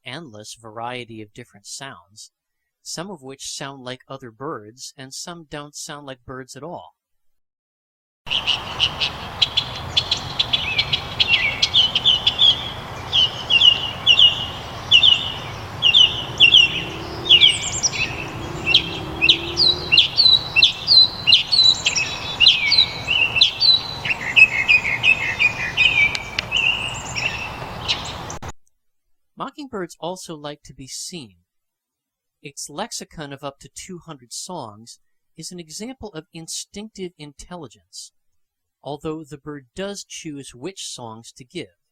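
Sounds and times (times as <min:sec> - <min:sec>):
mockingbird singing: 0:08.3 - 0:28.4.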